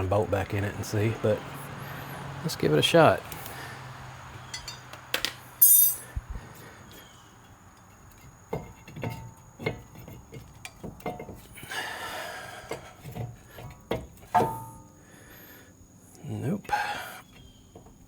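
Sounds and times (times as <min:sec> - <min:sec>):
brake caliper knocks and clunks: 0:08.0 - 0:11.5, 0:12.7 - 0:14.9.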